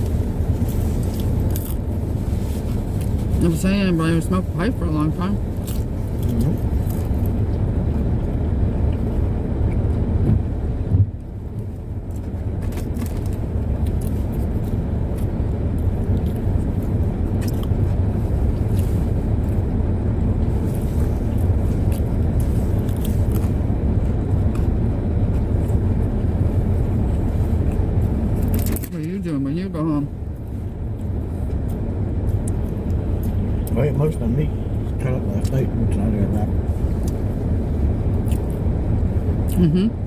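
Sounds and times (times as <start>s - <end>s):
car engine and tyre rumble: 0.0s - 40.0s.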